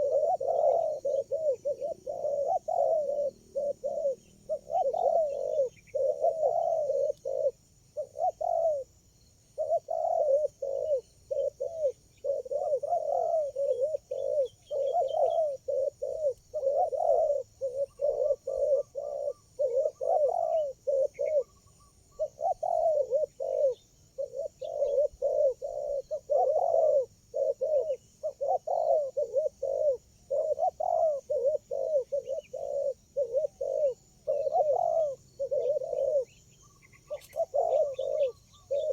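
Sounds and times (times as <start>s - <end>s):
doves cooing: 0.0s - 38.9s.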